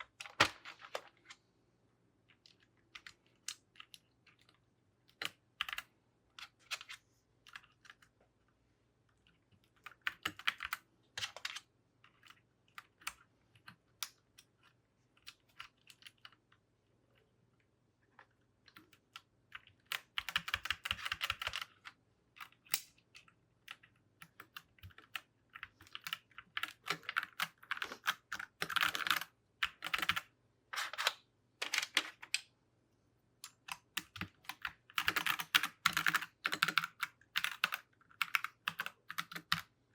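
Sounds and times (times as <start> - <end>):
mechanical keyboard keys clicking: 19.9 - 21.8, 23.7 - 30.3, 33.5 - 39.7.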